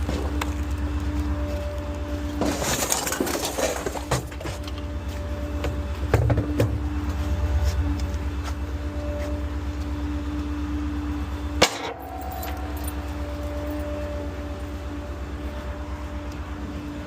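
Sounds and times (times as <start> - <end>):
garbage truck engine drone: 0.0 - 17.0
steady whine: 4.7 - 17.0.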